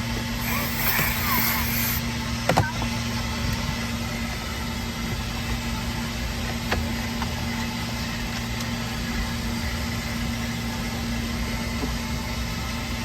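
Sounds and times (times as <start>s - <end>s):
low machine hum: 0.0s - 13.0s
even hiss: 0.4s - 2.0s.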